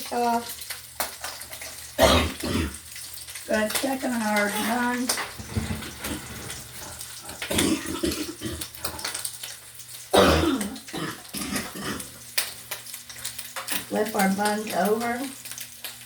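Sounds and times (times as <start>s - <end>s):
rack clatter: 5.2s - 6.9s
oven door and rack clicks: 5.3s - 6.8s.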